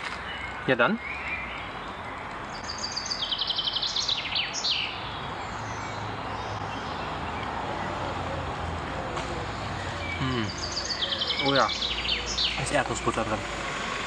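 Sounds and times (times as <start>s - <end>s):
outdoor noise: 0.0s - 14.0s
songbird trilling: 0.2s - 7.1s, 9.8s - 13.4s.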